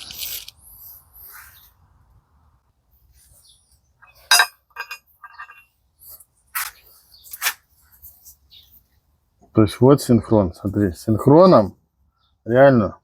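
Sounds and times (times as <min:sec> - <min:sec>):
metal parts clinking: 0:00.0 - 0:00.6, 0:04.0 - 0:05.7.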